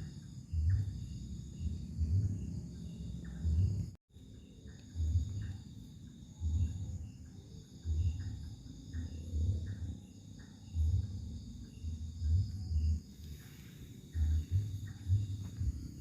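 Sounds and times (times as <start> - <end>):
insects chirring: 0.0 - 16.0
low rumbles: 14.0 - 16.0.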